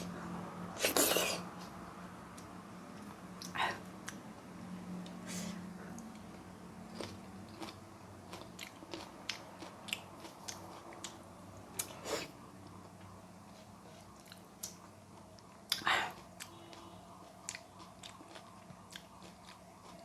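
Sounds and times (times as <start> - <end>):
faint low hum: 0.0 - 20.0
person chewing food: 5.0 - 20.0.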